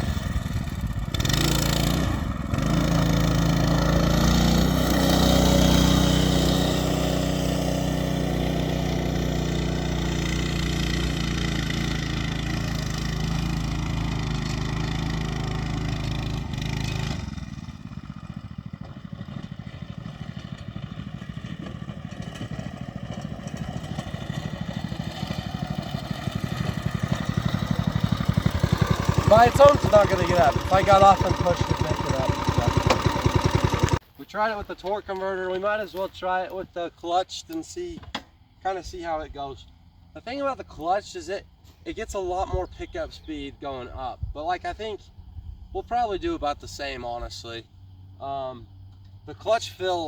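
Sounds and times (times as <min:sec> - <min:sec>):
small single-cylinder engine running: 0:00.0 - 0:34.0.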